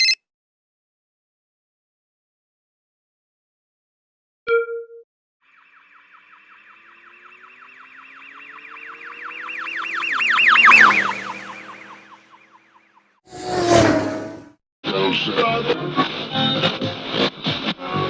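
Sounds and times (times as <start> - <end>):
whooping siren passing by: 5.5 - 14.3.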